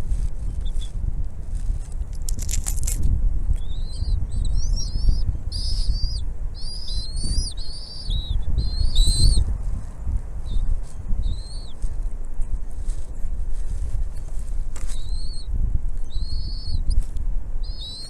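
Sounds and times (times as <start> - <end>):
low rumble: 0.0 - 14.7
eagle piping chirps: 0.1 - 1.0, 3.5 - 9.6, 10.4 - 12.7, 14.8 - 18.0.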